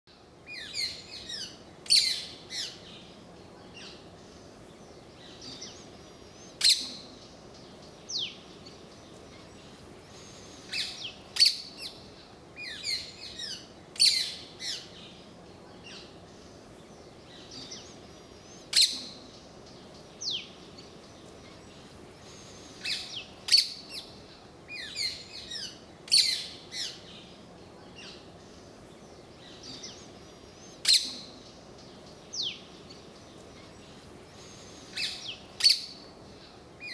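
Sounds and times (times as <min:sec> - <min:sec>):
birds chirping and chattering: 0:00.5 - 0:36.9.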